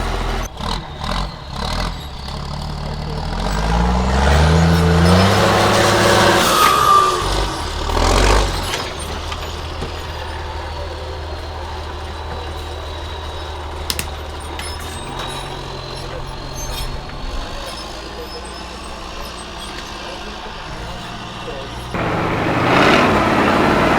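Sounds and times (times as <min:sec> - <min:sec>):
truck engine revving and idling: 0:00.0 - 0:23.9
short squeal: 0:03.2 - 0:21.4
sharp clicks: 0:13.9 - 0:14.2.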